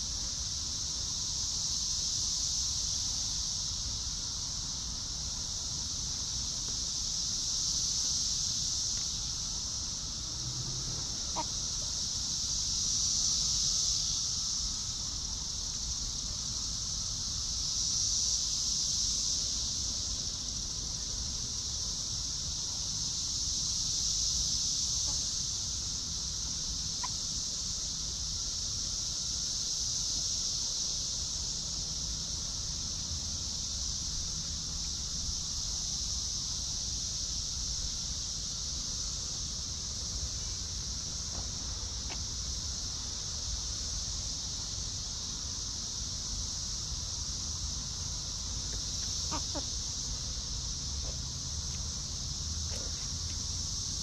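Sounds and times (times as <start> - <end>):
high-pitched insect chorus: 0.0 - 54.0
faint chicken calls: 10.8 - 12.0, 48.8 - 49.8.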